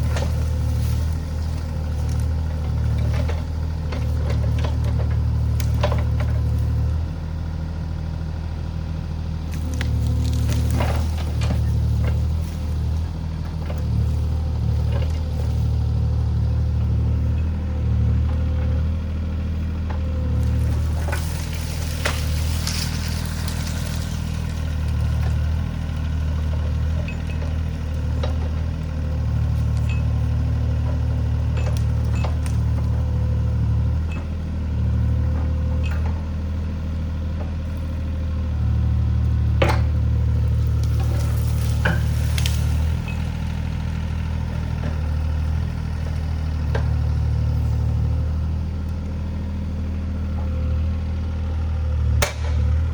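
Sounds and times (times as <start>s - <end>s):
wood snapping: 0.0s - 6.8s, 9.5s - 13.0s, 20.3s - 26.8s, 39.6s - 43.8s, 52.2s - 52.7s
excavator diesel engine running: 0.0s - 52.9s.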